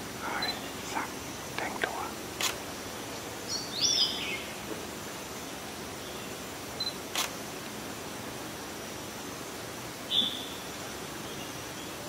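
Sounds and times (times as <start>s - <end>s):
steady background hiss: 0.0s - 12.0s
camera shutter clicks: 2.4s - 2.6s, 7.1s - 7.4s.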